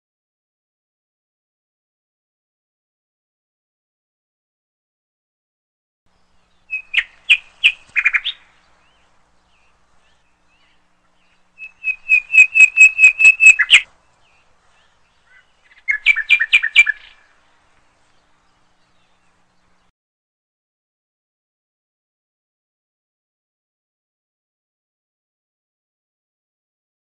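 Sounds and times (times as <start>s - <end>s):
bird chirping: 6.1s - 19.9s.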